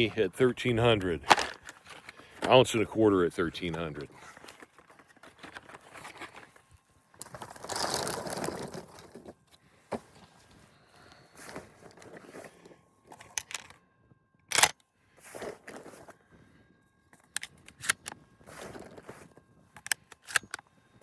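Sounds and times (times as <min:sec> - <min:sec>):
shotgun handling rustling: 0:01.0 - 0:02.8, 0:03.4 - 0:09.3, 0:11.4 - 0:13.8, 0:14.5 - 0:14.7, 0:17.2 - 0:20.6.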